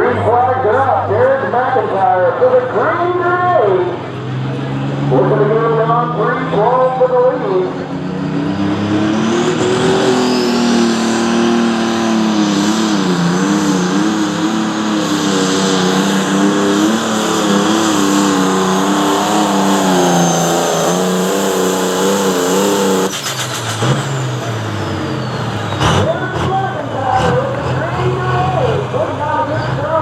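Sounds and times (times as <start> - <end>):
tractor engine at full throttle: 0.0 - 30.0.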